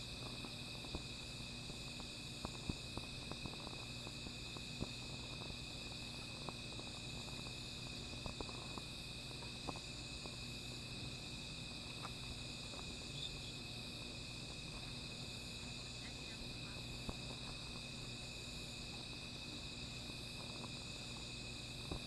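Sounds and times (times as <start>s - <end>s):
fire crackling and popping: 0.0s - 10.5s
night insects trilling: 0.0s - 22.0s.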